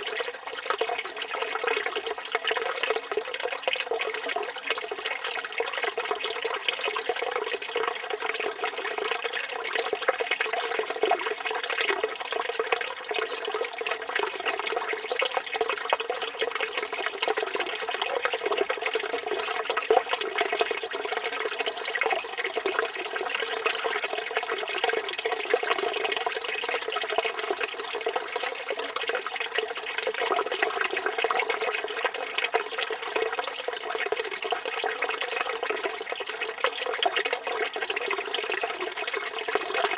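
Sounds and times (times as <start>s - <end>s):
fountain water splashing into basin: 0.0s - 11.0s.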